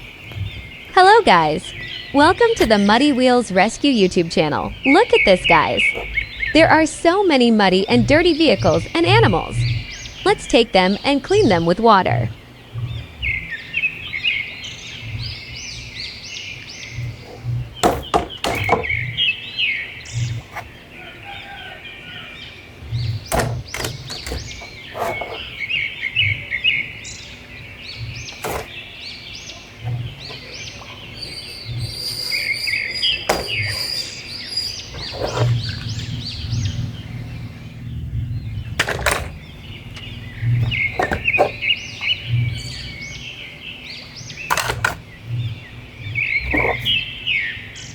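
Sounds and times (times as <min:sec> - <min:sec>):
small birds chirping: 0:00.0 - 0:47.9
sharp clicks and knocks: 0:17.0 - 0:19.0, 0:23.0 - 0:25.6, 0:28.0 - 0:28.8, 0:38.8 - 0:42.5, 0:44.5 - 0:45.1.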